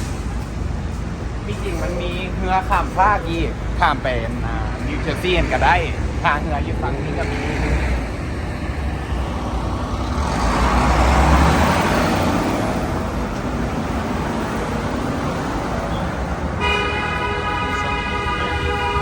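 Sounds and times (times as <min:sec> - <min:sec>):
vehicle passing: 0:00.0 - 0:19.0
vehicle horn blast: 0:16.6 - 0:19.0.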